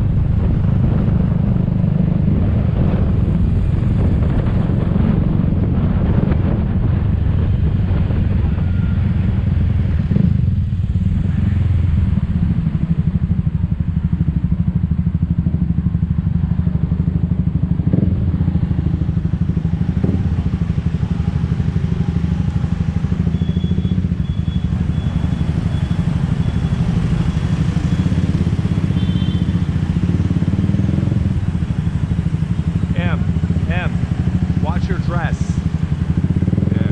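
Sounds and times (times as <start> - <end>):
road and wind noise: 0.0 - 36.9
scooter engine running: 11.0 - 34.7.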